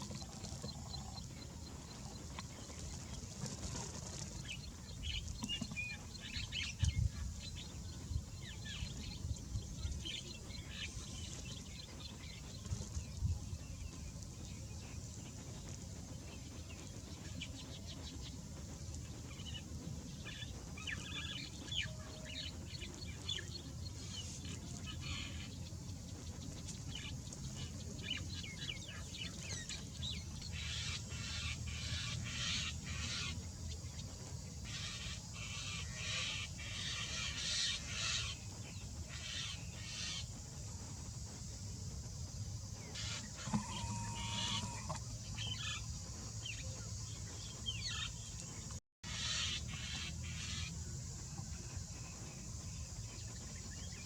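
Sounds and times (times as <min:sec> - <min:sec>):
steady low rumble: 0:00.0 - 0:43.4
birds chirping: 0:00.0 - 0:54.0.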